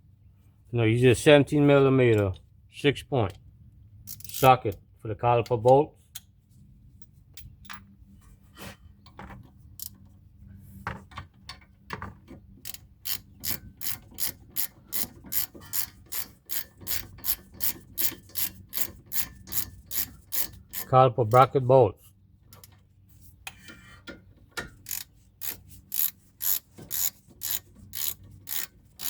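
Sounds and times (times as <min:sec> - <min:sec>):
socket ratchet clicking: 0:12.7 - 0:20.9, 0:24.6 - 0:28.7.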